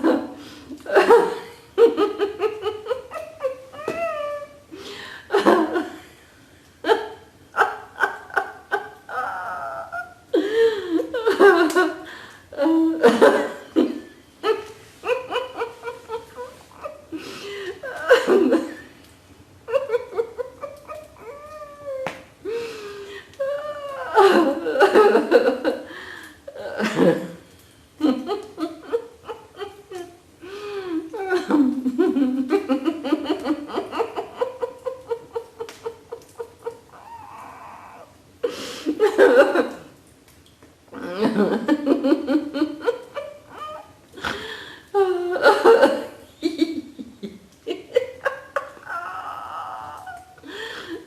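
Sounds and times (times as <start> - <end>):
person laughing loudly: 12.6 - 18.8, 47.7 - 51.0.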